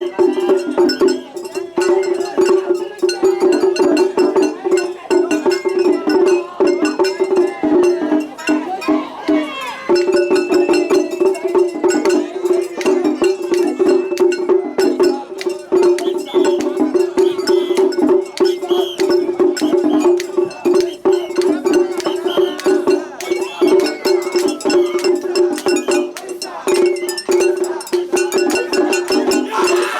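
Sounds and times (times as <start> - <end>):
festival music melody: 11.6 - 29.9.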